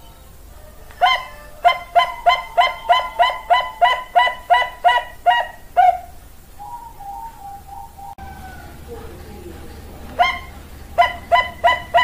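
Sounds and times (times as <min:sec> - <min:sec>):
dove calling: 0:00.0 - 0:12.0.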